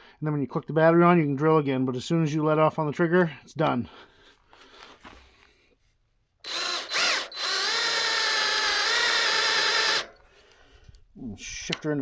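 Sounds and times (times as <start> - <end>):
cordless drill motor whine: 6.5 - 10.2.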